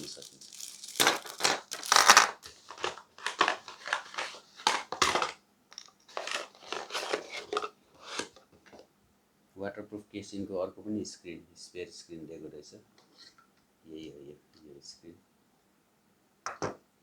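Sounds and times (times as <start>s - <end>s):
plastic packaging crinkling: 0.0s - 5.4s, 6.1s - 7.7s.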